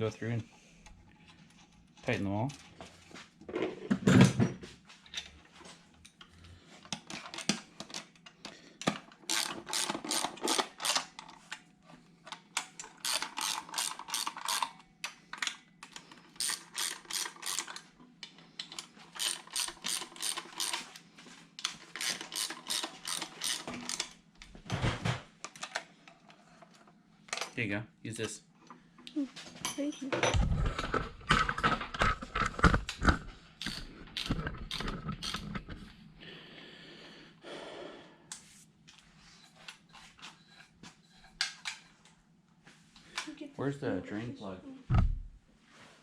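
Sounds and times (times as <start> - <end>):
ratchet wrench clicking: 9.3 - 11.0, 13.0 - 14.7, 16.4 - 17.8, 19.2 - 20.8, 22.0 - 24.1, 33.6 - 35.6.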